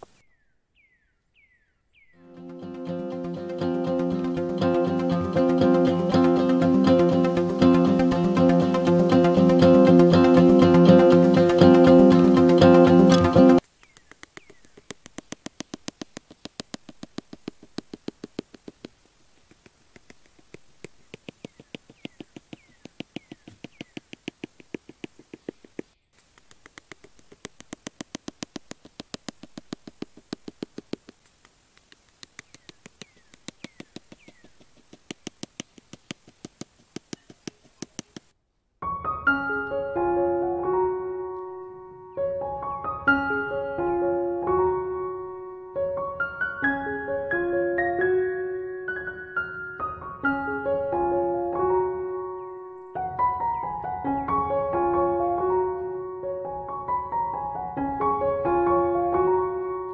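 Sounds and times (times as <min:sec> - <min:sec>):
soft piano music: 0:02.2 - 0:13.6, 0:38.8 - 0:59.9
bamboo sticks clicking in sand: 0:13.1 - 0:38.3.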